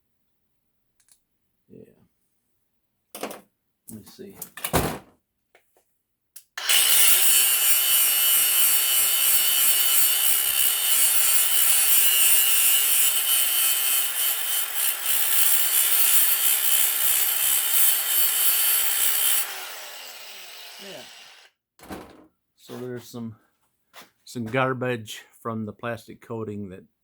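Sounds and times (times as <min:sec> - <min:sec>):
power tool running on metal: 0:06.6 - 0:21.5.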